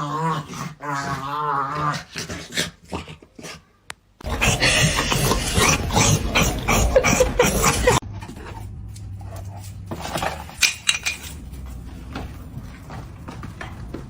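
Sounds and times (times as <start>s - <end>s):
dog vocalising loudly: 4.2s - 8.0s
light clinks and knocks: 8.1s - 14.0s.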